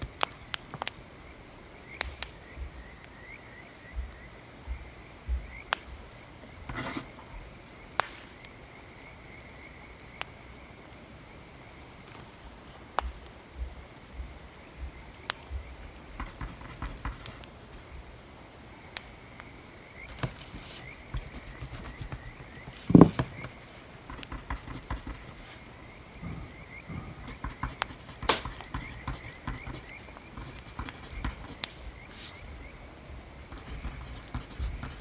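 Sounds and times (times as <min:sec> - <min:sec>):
scratching and tapping desk work: 0:06.6 - 0:07.2, 0:16.1 - 0:17.9, 0:20.1 - 0:32.3, 0:33.5 - 0:35.0
dull knock: 0:21.2 - 0:25.4, 0:26.2 - 0:30.0.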